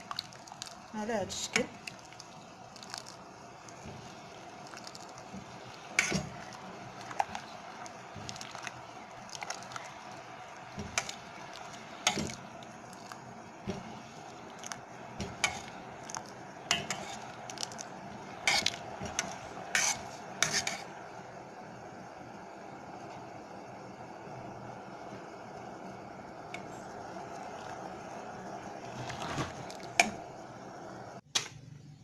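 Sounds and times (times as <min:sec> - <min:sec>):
spoon scraping a saucepan: 0:04.7 - 0:07.5, 0:14.6 - 0:17.8, 0:18.4 - 0:20.9.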